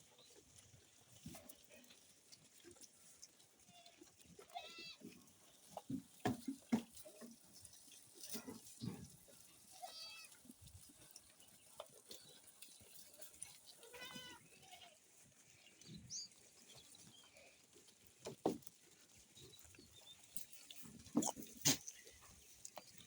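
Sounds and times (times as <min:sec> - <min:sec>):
farm animals: 0:00.0 - 0:23.0
goat bleating: 0:03.7 - 0:05.2, 0:09.6 - 0:10.5, 0:13.2 - 0:15.1.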